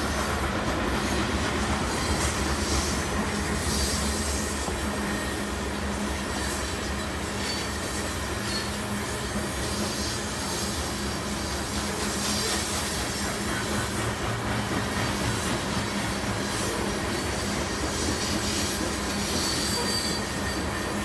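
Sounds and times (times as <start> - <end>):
freight cars rumbling on rail: 0.0 - 21.0
high wheel squeals: 3.6 - 10.5, 16.7 - 21.0.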